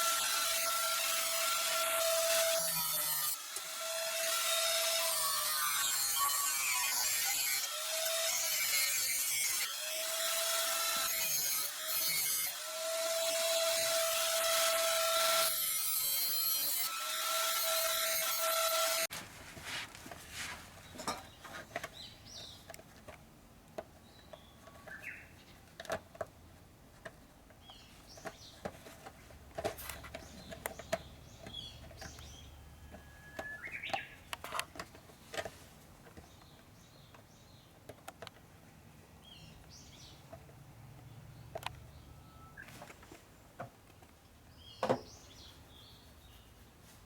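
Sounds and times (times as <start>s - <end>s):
birds chirping: 24.0s - 25.7s, 30.0s - 34.8s, 44.3s - 46.7s.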